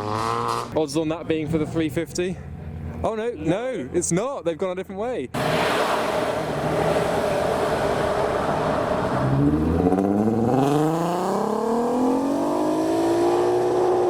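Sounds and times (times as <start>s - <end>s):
rushing exhaust noise: 5.4s - 12.2s
car engine accelerating hard: 5.4s - 14.0s.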